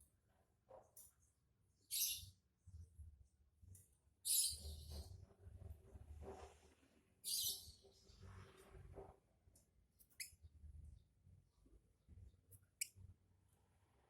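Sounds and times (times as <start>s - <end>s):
lovebird chirping: 1.9s - 2.3s, 4.3s - 4.8s, 7.2s - 7.7s.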